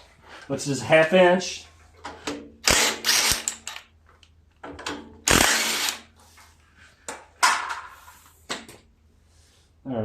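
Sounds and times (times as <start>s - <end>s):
mechanical tool noise: 2.6s - 3.8s, 5.2s - 6.1s.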